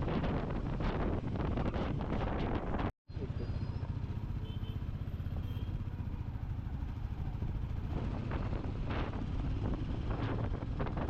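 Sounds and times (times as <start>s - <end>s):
wind hitting microphone: 0.0s - 3.5s, 7.2s - 11.0s
motorcycle engine running: 3.1s - 11.0s.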